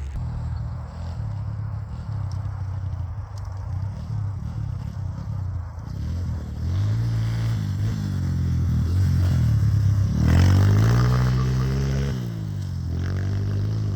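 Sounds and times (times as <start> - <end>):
motorbike engine revving: 3.7 - 13.9.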